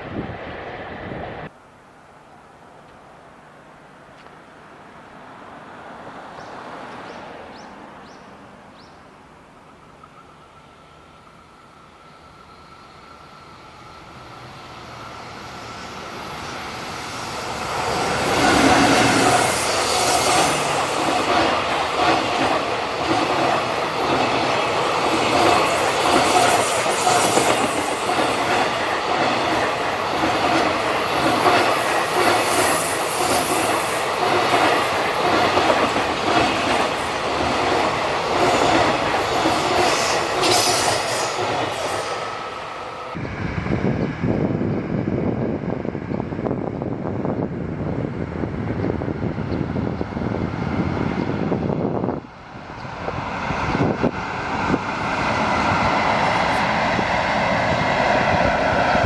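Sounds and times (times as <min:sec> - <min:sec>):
train wheels squealing: 0:10.0 - 0:21.3, 0:23.4 - 0:42.4.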